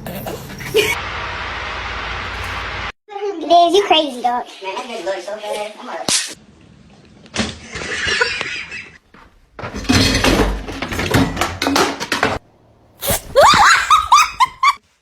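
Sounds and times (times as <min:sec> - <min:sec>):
clattering and knocking: 0:09.6 - 0:12.4.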